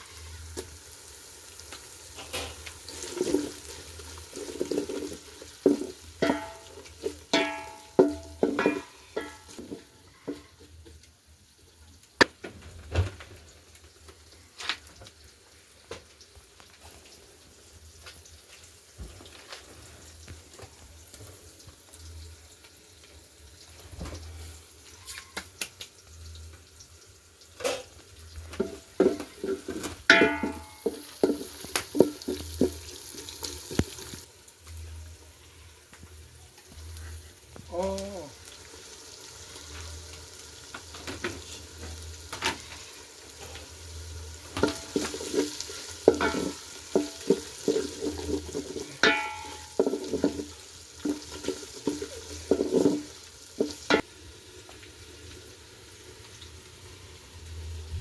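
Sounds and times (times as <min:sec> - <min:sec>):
food sizzling in a pot: 0:00.0 - 0:58.0
utensil knocking and scraping pot: 0:02.2 - 0:10.5, 0:28.5 - 0:34.3, 0:44.5 - 0:54.1.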